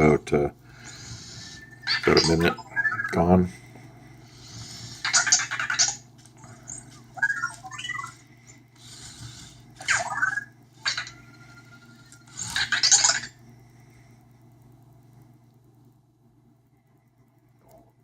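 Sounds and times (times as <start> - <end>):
warbling electronic chirp: 0.8 - 3.3, 4.9 - 13.4
small motors whirring: 8.8 - 13.3.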